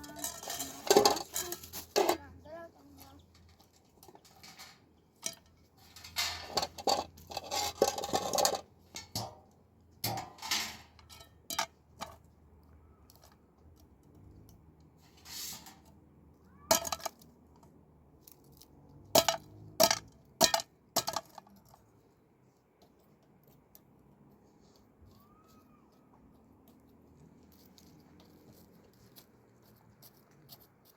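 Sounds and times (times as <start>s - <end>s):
dishes clattering and scraping: 0.0s - 2.2s, 4.2s - 9.4s.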